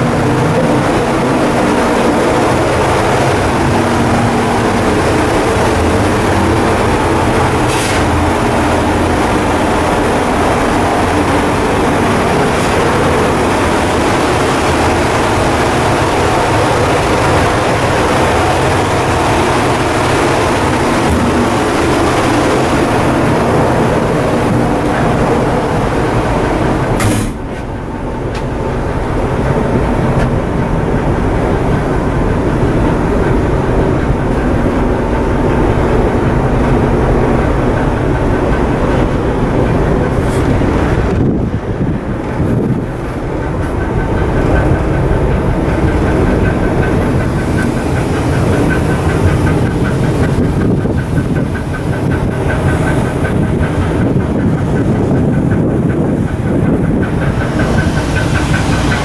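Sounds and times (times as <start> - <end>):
ship diesel machinery rumbling: 0.0 - 59.0.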